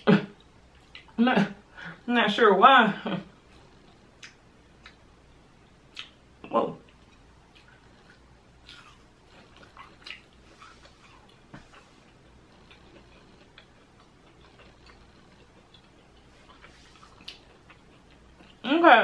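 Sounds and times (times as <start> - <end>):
crunchy chewing with mouth clicks: 0.4 - 1.2, 5.9 - 6.2, 6.8 - 18.7.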